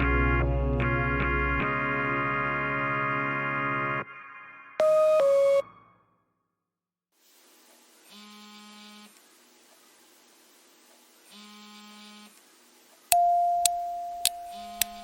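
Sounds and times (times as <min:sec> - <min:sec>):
electronic buzzes: 0:08.0 - 0:09.2, 0:11.2 - 0:12.5, 0:13.8 - 0:15.0
loud steady beep: 0:13.1 - 0:15.0
sharp ticks: 0:13.6 - 0:15.0.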